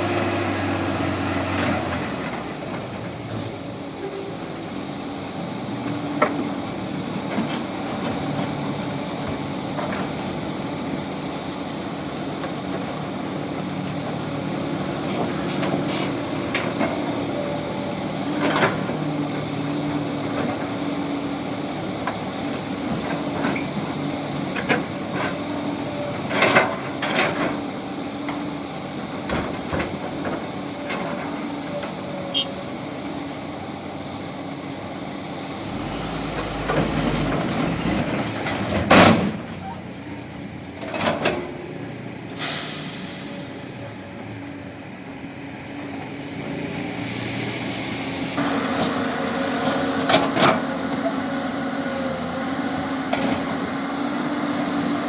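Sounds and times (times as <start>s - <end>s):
diesel construction machinery running: 0.0s - 55.0s
air release hiss: 42.4s - 43.8s.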